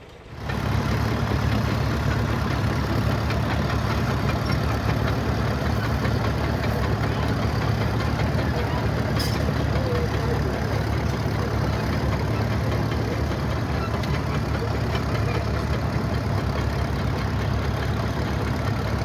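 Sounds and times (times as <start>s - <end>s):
heavy equipment engine running: 0.1s - 19.0s.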